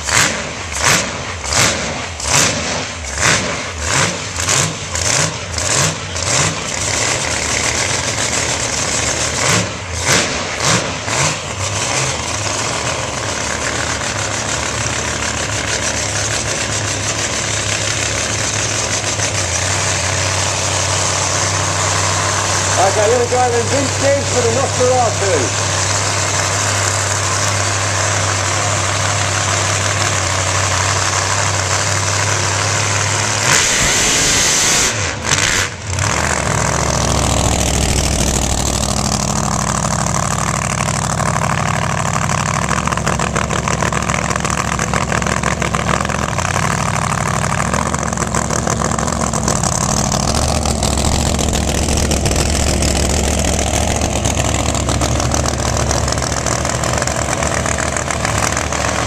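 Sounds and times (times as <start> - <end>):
drag car engine idling and revving: 0.0 - 59.0.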